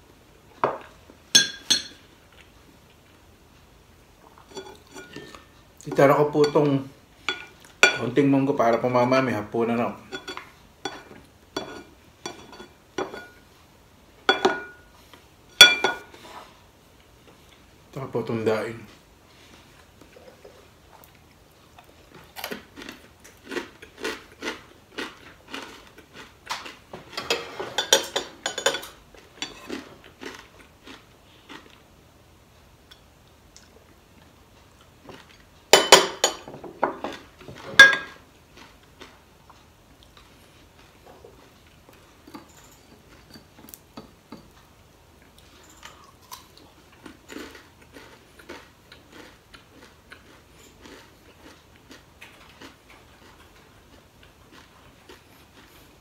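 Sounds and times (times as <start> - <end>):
ceramic plate clinks: 1.4 - 2.0, 14.3 - 14.8, 15.6 - 16.0
crunchy chewing of fried fish: 19.4 - 32.0, 37.0 - 56.0.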